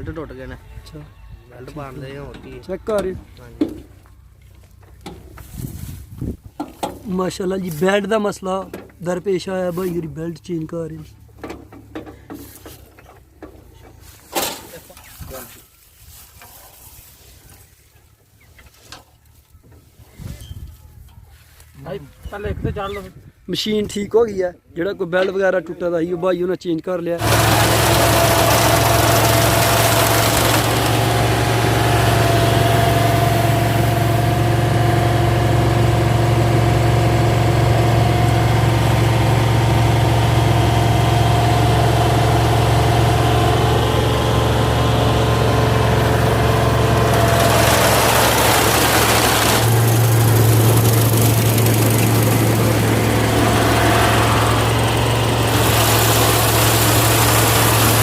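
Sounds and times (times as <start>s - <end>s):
harvester engine running: 27.2s - 58.0s.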